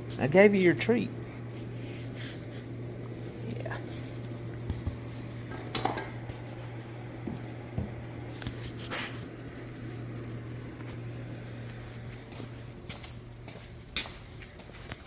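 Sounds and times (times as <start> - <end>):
steady low hum: 0.0 - 15.0
dog scuffling: 2.8 - 15.0
dog claws clicking on floor: 4.4 - 11.5.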